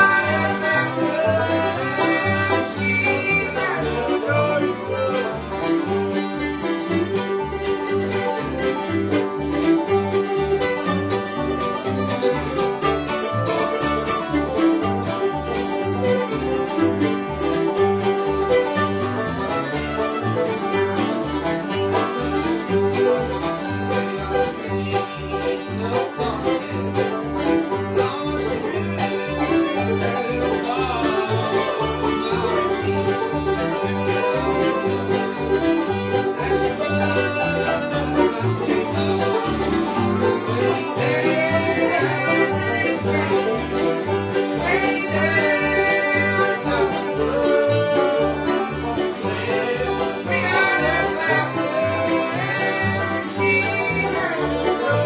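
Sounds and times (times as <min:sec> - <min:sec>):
acoustic guitar picking: 0:00.0 - 0:55.0
banjo picking: 0:00.0 - 0:55.0
bass line: 0:00.0 - 0:55.0
fiddle sliding notes: 0:00.0 - 0:55.0.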